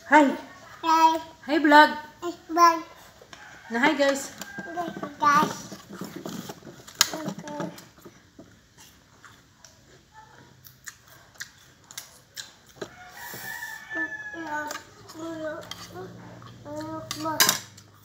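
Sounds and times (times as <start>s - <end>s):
person chewing crunchy fruit: 8.1s - 17.0s.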